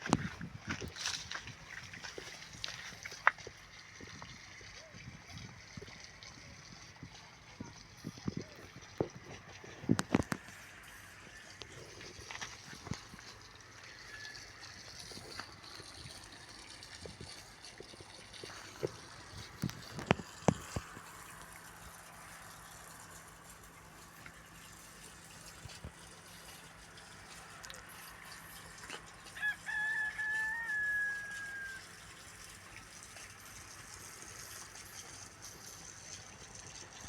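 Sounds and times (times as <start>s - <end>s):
rooster crowing: 13.8s - 14.8s, 29.3s - 32.0s.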